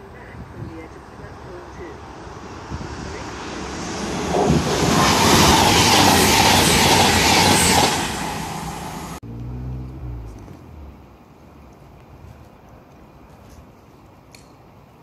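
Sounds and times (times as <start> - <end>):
train passing at speed: 0.0 - 11.5
distant train engine hum: 0.0 - 15.0.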